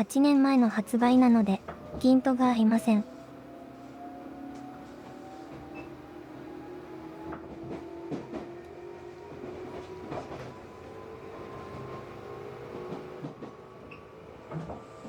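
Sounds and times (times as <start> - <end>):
electric train motors humming: 0.0 - 15.0.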